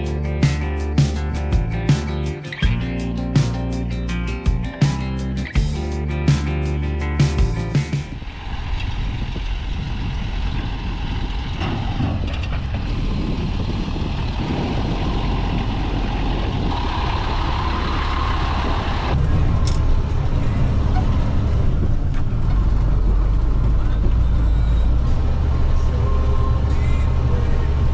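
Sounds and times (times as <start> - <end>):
background music: 0.0 - 8.1
heavy vehicle engine rumbling: 0.0 - 27.9.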